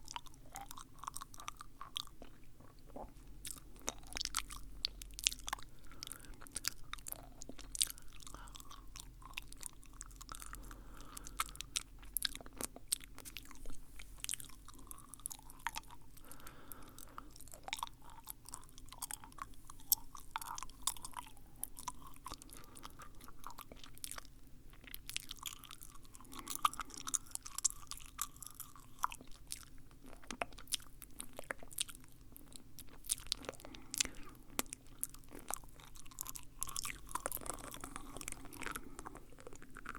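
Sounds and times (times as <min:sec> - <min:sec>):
wet mouth sounds: 0:00.0 - 0:39.9.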